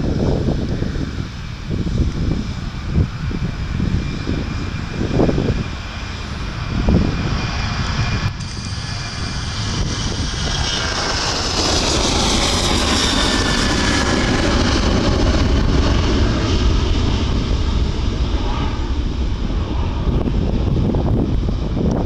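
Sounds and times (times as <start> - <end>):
jet engines roaring past: 0.0 - 22.0.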